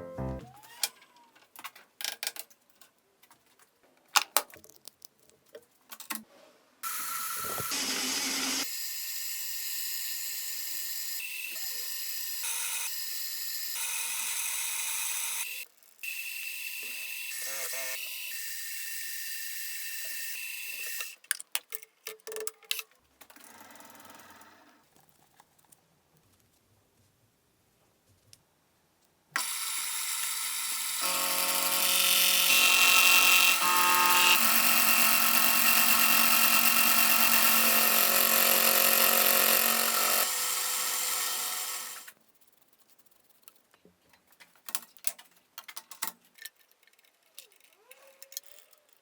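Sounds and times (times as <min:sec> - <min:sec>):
power tool whirring: 0:06.8 - 0:08.7, 0:29.4 - 0:42.1.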